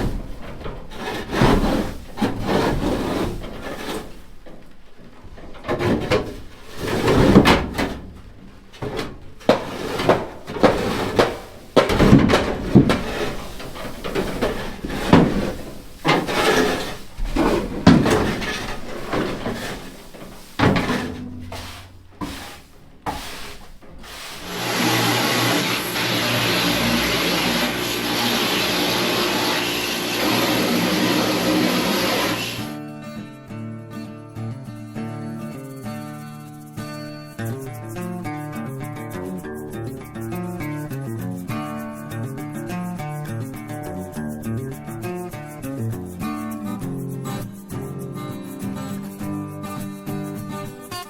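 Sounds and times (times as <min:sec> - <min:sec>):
broom scraping trailer floor: 0:00.0 - 0:32.8.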